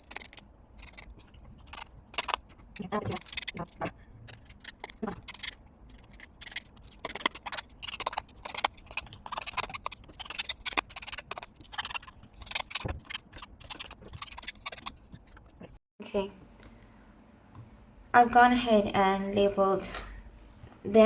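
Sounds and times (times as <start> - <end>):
paper and pen scratches and taps: 0.0 - 15.8.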